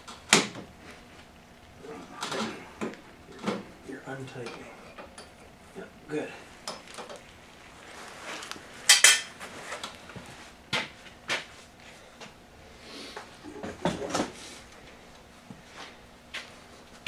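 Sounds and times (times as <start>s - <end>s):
hand tools clanking on steel: 8.9s - 9.4s.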